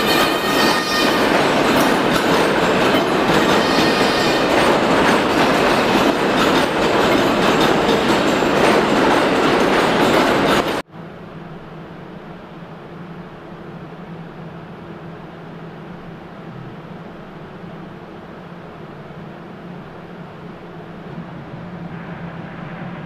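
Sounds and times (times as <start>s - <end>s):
subway train rumbling on tracks: 0.0s - 23.0s
low hum: 11.0s - 23.0s.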